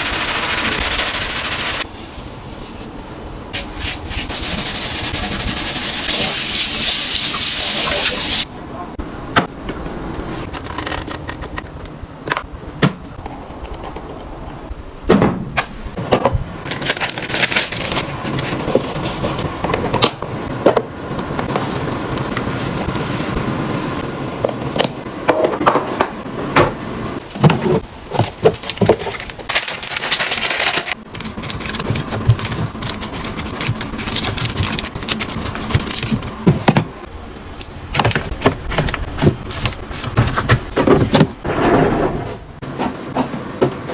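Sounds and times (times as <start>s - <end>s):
steady hissing noise: 0.0s - 8.5s.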